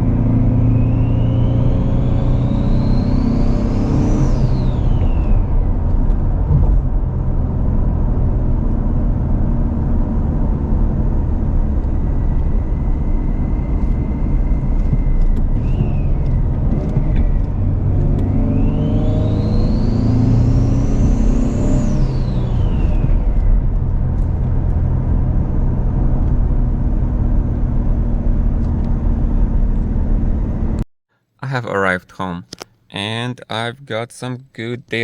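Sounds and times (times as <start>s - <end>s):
car engine accelerating: 0.0s - 30.8s.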